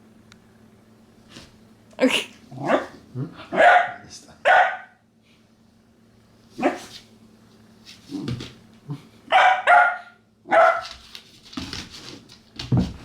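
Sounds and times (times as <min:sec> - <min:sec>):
puppy barking: 0:02.6 - 0:05.0, 0:06.6 - 0:06.9, 0:09.3 - 0:10.9.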